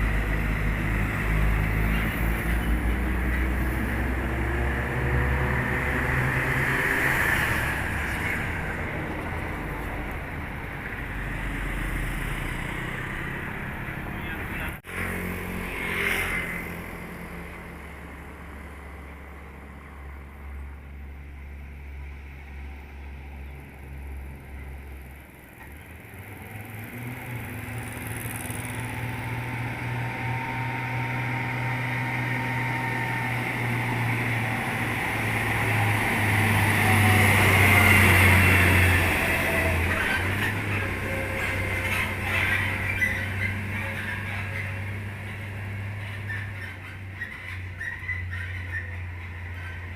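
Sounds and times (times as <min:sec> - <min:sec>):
truck diesel engine droning: 0:00.0 - 0:49.9.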